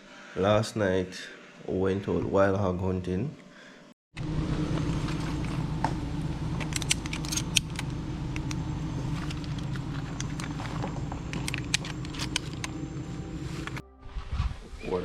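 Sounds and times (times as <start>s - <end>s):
motor humming: 4.2s - 13.8s
light clicks and rattles: 6.5s - 13.0s.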